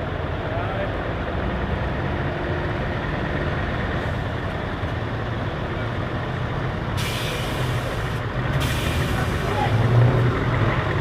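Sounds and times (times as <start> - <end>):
diesel truck engine running: 0.0 - 11.0
air brake hiss: 7.0 - 9.7.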